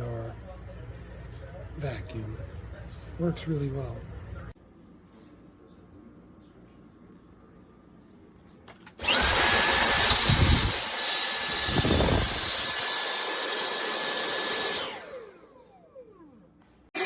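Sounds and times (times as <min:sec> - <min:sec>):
vacuum cleaner running: 0:09.0 - 0:17.0.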